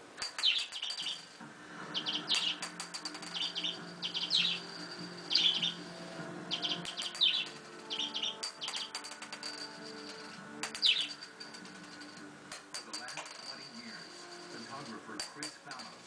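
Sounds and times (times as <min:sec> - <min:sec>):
budgerigar chirping: 0:06.5 - 0:08.8.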